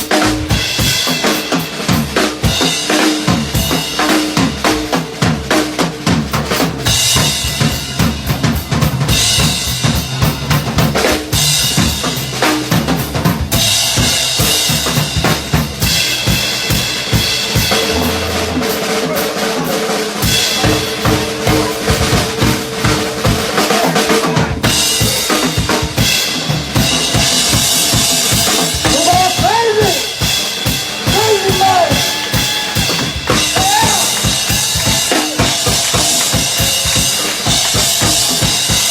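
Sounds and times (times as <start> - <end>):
band playing instrumental: 0.0 - 38.9
drum kit kick and snare: 0.0 - 38.9
lead line bending in pitch: 13.6 - 23.2
held note: 17.6 - 20.4.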